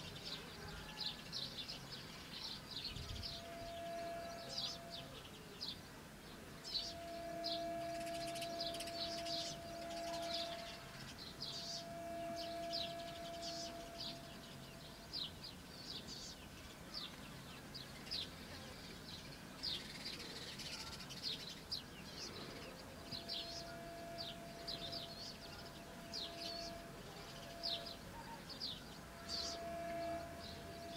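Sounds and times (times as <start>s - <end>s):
small birds chirping: 0.0s - 30.9s
steady hum: 6.4s - 15.2s, 22.3s - 30.9s.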